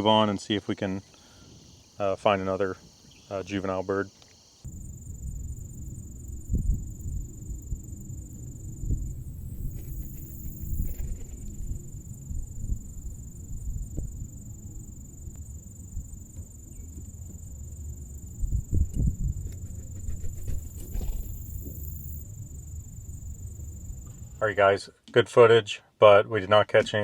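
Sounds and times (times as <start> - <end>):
steady low rumble: 4.6 - 24.7
low thumps: 4.7 - 24.4.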